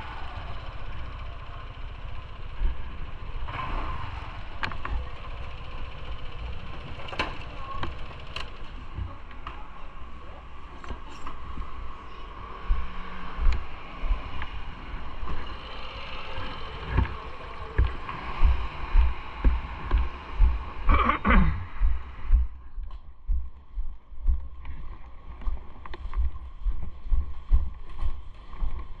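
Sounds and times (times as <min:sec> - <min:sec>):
falling whine: 0:00.0 - 0:23.1
wind buffeting and road rumble: 0:16.4 - 0:20.9.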